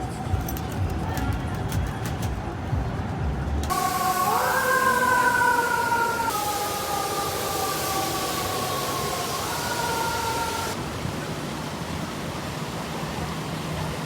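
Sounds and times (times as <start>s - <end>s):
city traffic roar: 0.0s - 14.0s
emergency vehicle siren: 3.7s - 10.8s.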